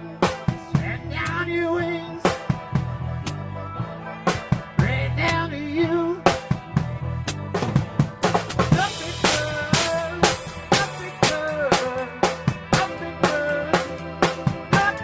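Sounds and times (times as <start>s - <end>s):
band music: 0.0s - 15.0s.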